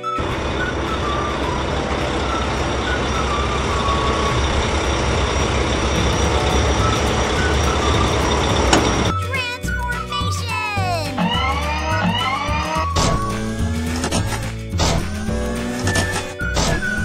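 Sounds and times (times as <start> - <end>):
heavy diesel engine running: 0.0 - 10.2, 10.9 - 17.0.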